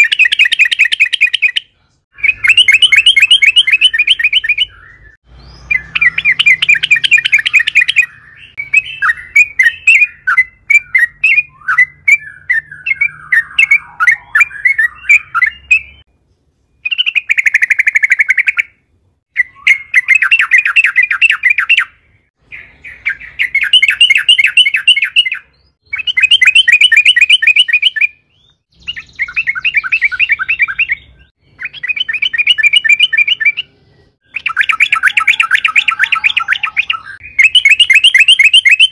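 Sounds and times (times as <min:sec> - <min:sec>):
bird chattering and trilling: 0:00.0 - 0:16.1, 0:16.8 - 0:38.9.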